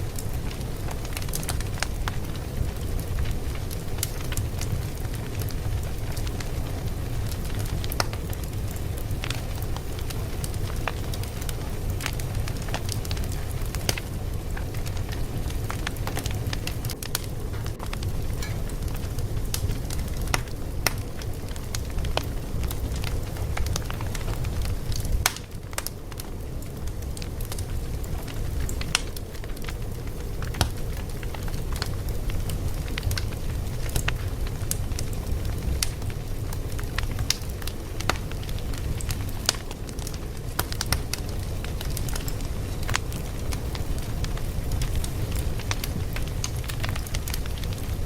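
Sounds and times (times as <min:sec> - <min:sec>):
fire crackling and popping: 0:00.0 - 0:48.0
low fire rumble: 0:00.0 - 0:48.0.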